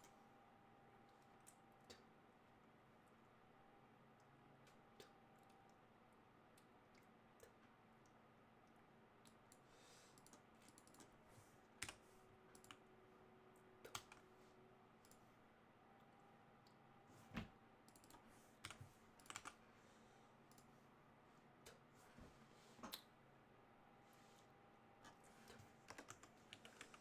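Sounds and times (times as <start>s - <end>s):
computer keys clicking: 9.2s - 11.1s, 11.8s - 12.9s, 13.8s - 14.2s, 15.0s - 15.2s, 17.8s - 19.6s, 20.5s - 20.7s, 25.5s - 27.0s
mouse clicks: 17.9s - 19.6s.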